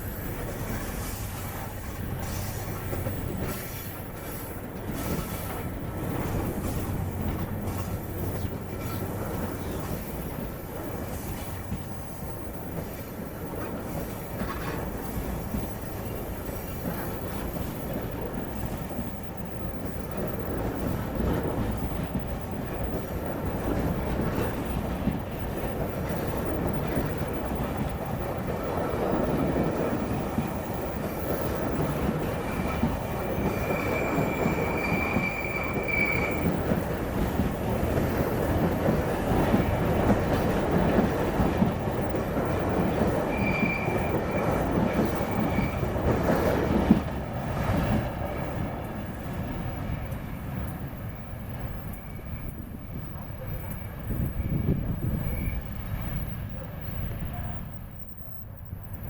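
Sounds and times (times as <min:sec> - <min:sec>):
train wheels rumbling and clattering: 0:00.0 - 0:59.0
high wheel squeal: 0:32.6 - 0:36.6, 0:43.2 - 0:45.9, 0:54.4 - 0:56.2.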